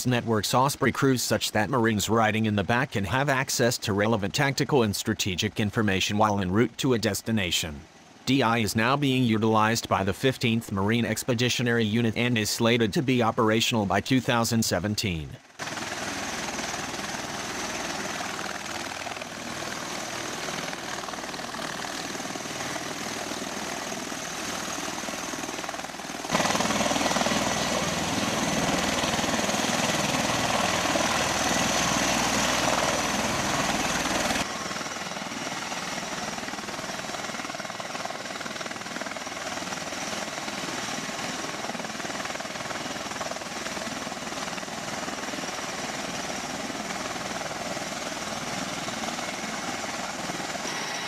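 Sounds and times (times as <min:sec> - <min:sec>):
aircraft engines and rotors running: 0:00.0 - 0:51.0.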